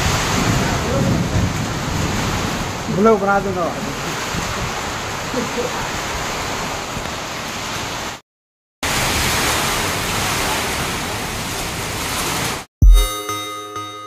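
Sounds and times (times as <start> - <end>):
heavy rain on metal roof: 0.0 - 8.2, 8.8 - 12.7
music: 12.8 - 14.0.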